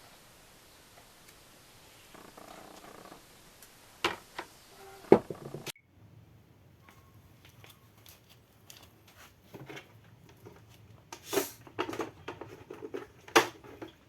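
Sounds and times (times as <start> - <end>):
handling clicks and knocks: 6.9 - 14.0.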